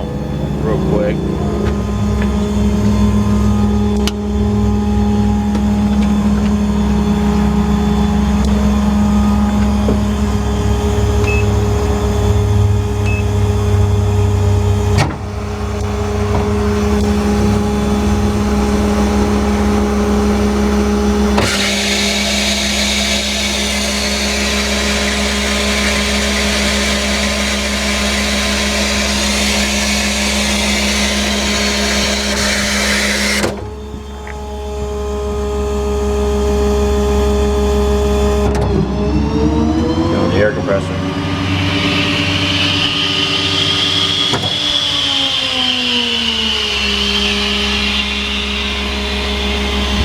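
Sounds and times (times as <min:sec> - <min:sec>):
diesel engine drone: 0:00.0 - 0:50.0
hydraulic pump whine: 0:00.0 - 0:50.0
hydraulic clunk: 0:01.2 - 0:36.0, 0:41.0 - 0:50.0
loud rushing hiss: 0:40.9 - 0:50.0.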